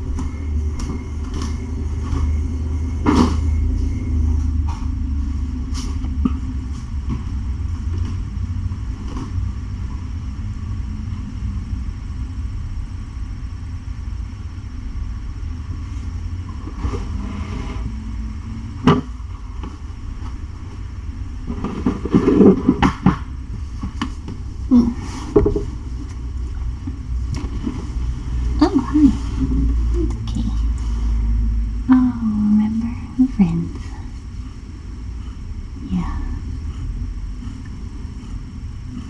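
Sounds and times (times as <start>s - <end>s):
cat purring: 15.8s - 39.0s
rustling and knocks of handling: 18.8s - 28.6s.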